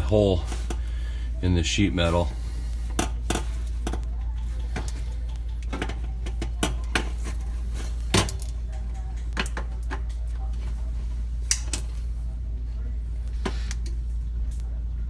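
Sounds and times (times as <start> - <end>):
small parts clicking and rattling: 2.8 - 10.8.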